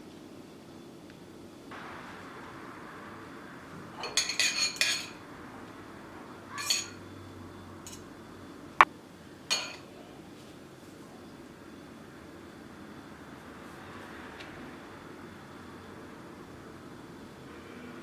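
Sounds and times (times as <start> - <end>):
utensils and dishes clinking: 4.0 - 5.2, 6.5 - 7.0, 7.8 - 8.1, 9.5 - 9.9.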